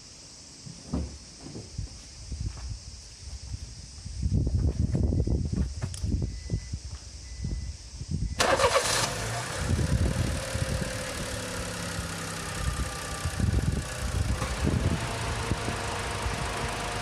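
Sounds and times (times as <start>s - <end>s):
car engine starting and idling: 8.4s - 17.0s.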